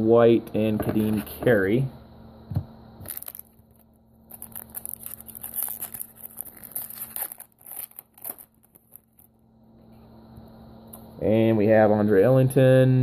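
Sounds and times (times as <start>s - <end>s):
wrapper tearing and crinkling: 3.0s - 9.3s.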